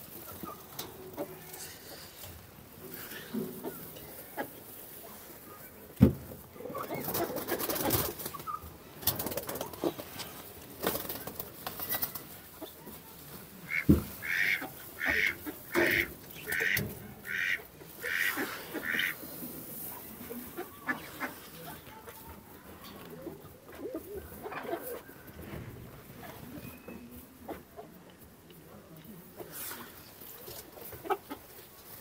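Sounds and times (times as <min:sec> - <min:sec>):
rustling straw and sacking: 0:12.2 - 0:22.8.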